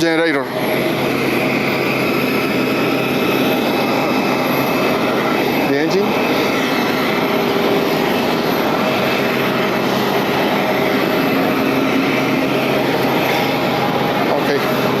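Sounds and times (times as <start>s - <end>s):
aircraft ramp hiss and hum: 0.0s - 15.0s.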